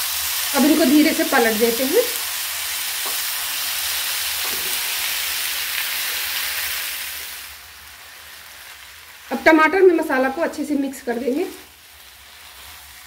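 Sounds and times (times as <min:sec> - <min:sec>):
food sizzling in frying pan: 0:00.0 - 0:13.0.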